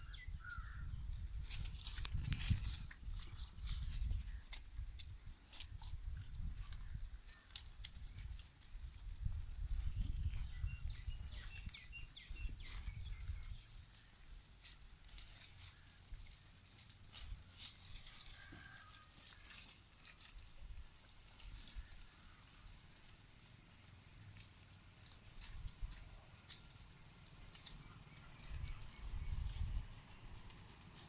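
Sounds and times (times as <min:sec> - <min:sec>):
wind rumbling on microphone: 0:00.0 - 0:14.4, 0:28.4 - 0:30.6
animals rustling and clicking: 0:01.4 - 0:31.0.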